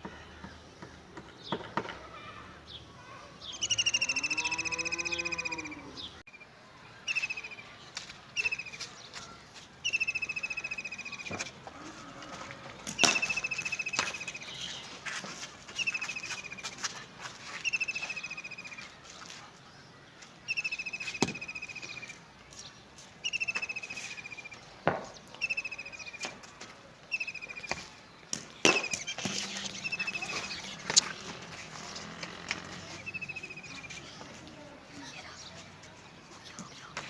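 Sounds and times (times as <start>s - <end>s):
songbird trilling: 3.4s - 6.4s, 7.1s - 7.6s, 9.8s - 11.4s, 13.0s - 14.8s, 17.6s - 18.8s, 20.5s - 22.2s, 23.2s - 24.6s, 25.3s - 26.2s, 27.1s - 27.8s, 28.8s - 31.1s, 32.8s - 34.1s.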